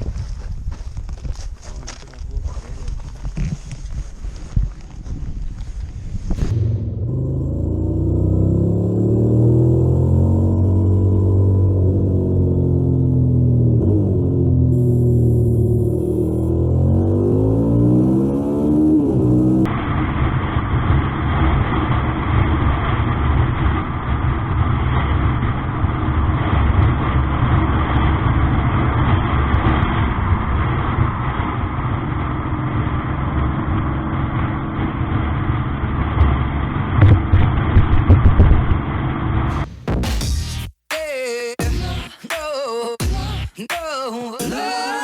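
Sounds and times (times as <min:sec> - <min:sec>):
vehicle engine and road noise: 0:00.0 - 0:40.7.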